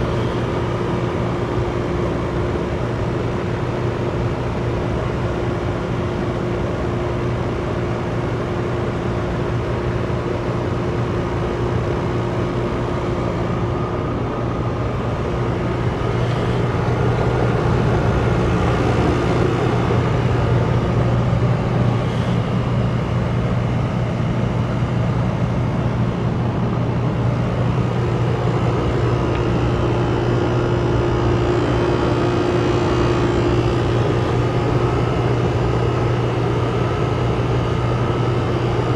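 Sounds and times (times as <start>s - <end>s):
heat pump humming: 0.0s - 38.9s.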